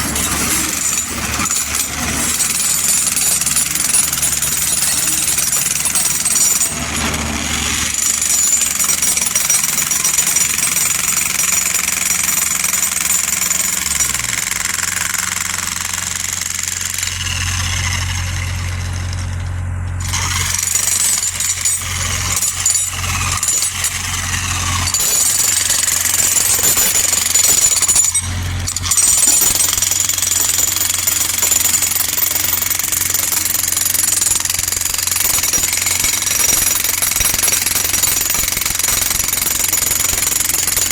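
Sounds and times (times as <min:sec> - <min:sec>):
high-pitched mechanical clatter: 0:16.8 - 0:40.9.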